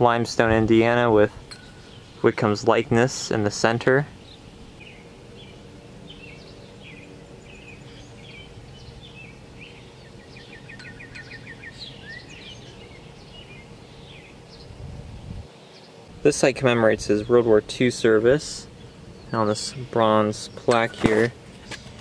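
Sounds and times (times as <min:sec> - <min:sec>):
low outdoor hum: 0:00.0 - 0:22.0
small birds singing: 0:00.0 - 0:22.0
bird trill: 0:01.5 - 0:02.3, 0:04.2 - 0:14.8.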